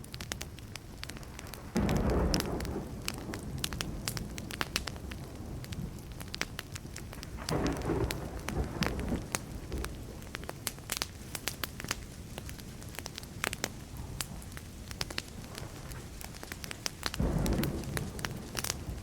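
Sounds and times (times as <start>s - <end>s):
wood fire crackling and popping: 0.0s - 19.0s
low thunder rumble: 1.5s - 10.8s, 13.2s - 19.0s.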